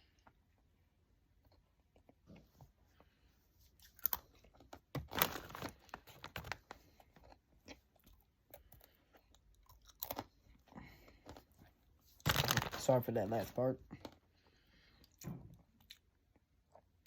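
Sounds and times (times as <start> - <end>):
pretzels crunching: 3.8 - 14.2.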